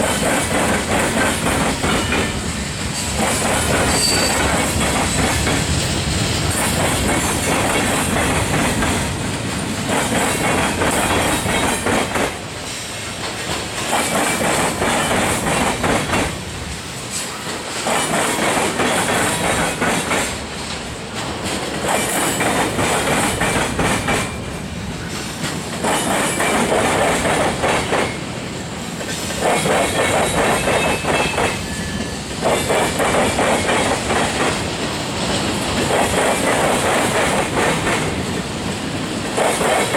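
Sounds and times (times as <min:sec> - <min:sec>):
train wheels clattering on rails: 0:00.0 - 0:39.9
faint wheel squeal: 0:03.9 - 0:04.4.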